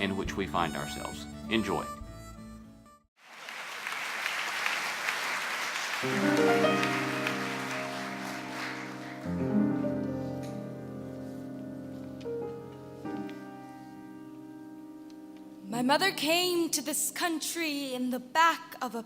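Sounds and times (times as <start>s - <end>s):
slow instrumental music: 0.0s - 3.1s, 6.0s - 17.4s
audience applauding: 3.2s - 10.0s.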